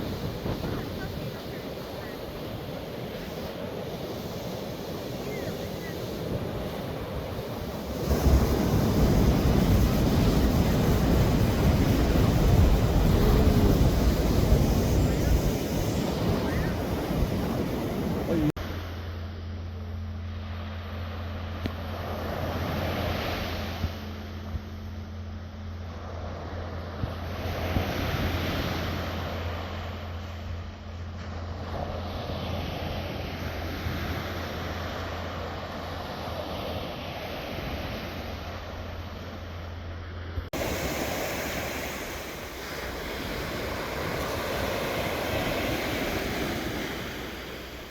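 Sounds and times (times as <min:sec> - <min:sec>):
wind rumbling on microphone: 0:00.0 - 0:18.6
sea waves washing on shore: 0:00.0 - 0:19.2, 0:20.0 - 0:47.9
steady low hum: 0:00.0 - 0:47.9.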